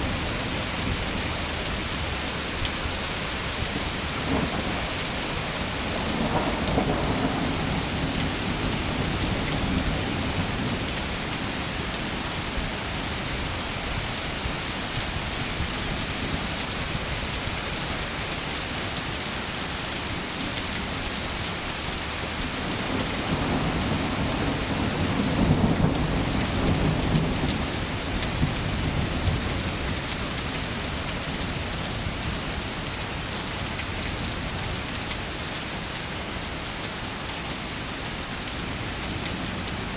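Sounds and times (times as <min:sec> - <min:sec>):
heavy rain hissing: 0:00.0 - 0:34.0
low rolling thunder: 0:03.6 - 0:12.4, 0:22.6 - 0:30.0.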